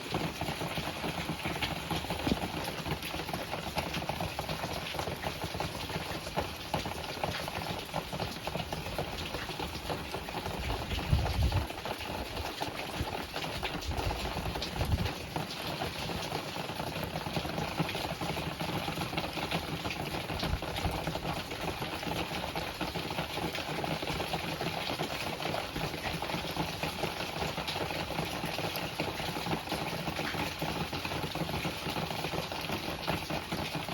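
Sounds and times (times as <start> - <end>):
wind and rain rushing: 0.0 - 22.3.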